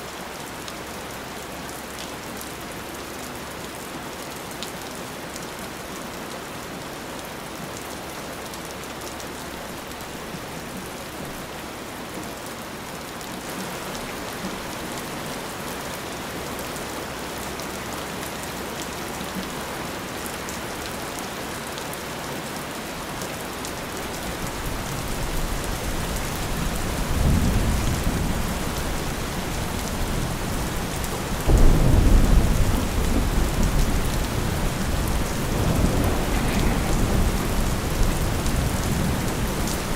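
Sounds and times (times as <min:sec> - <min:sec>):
steady rain falling: 0:00.0 - 0:39.9
rolling thunder: 0:24.5 - 0:39.9.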